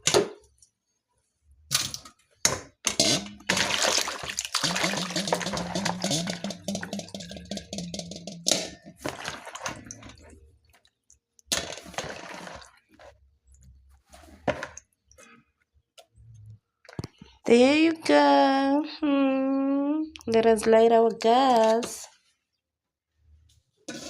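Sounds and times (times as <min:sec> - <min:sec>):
knocks and splashes in sink: 0:02.5 - 0:10.3
water running from tap: 0:03.2 - 0:08.4.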